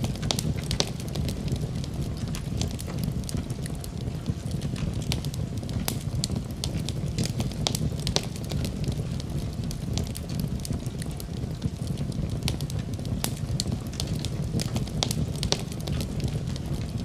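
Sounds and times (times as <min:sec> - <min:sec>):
low rumble of flames: 0:00.0 - 0:17.0
wood crackling and popping: 0:00.0 - 0:17.0.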